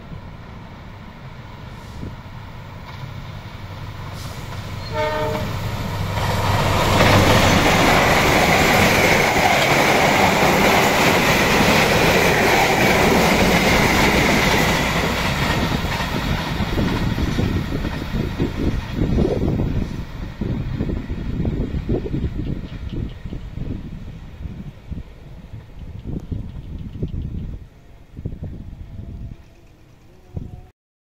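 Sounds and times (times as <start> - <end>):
locomotive rumble: 0.0 - 30.7
train coaches clattering on rails: 2.0 - 23.7
locomotive horn blast: 4.2 - 5.8.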